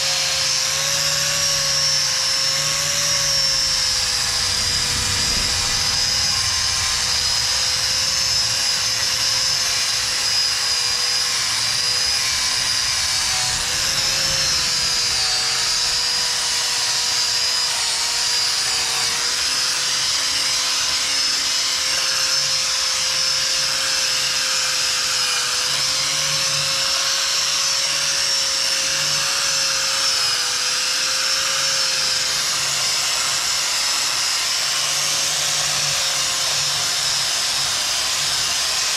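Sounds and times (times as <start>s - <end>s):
power tool motor whining: 0.0s - 38.9s.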